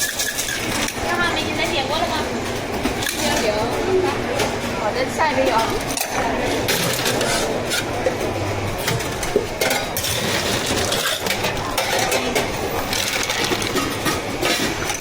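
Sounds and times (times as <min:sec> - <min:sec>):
clinking and clattering of cups: 0:00.0 - 0:01.2, 0:05.4 - 0:15.0.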